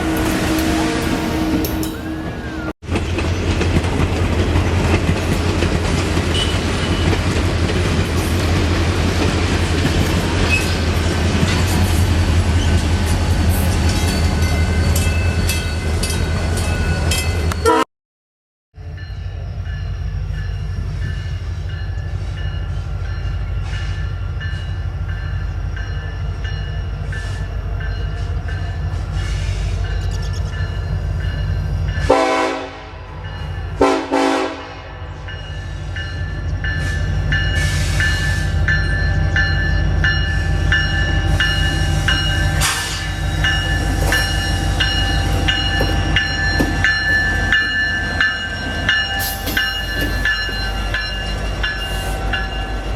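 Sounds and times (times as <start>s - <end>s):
train horn blasts: 0.0s - 2.7s, 17.6s - 17.8s, 32.0s - 35.3s, 40.4s - 46.1s
train rumbling: 0.0s - 17.8s, 18.8s - 52.9s
high ringing tones: 35.3s - 52.9s.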